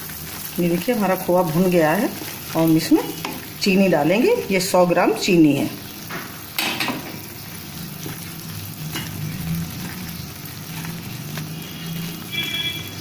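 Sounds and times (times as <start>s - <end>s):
food sizzling in a frying pan: 0.0s - 13.0s
spatula scraping a pan: 7.4s - 13.0s.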